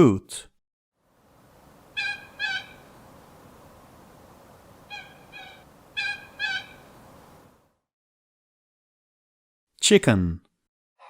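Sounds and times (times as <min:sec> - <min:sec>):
coot honking calls: 0:01.8 - 0:03.3, 0:04.7 - 0:07.4.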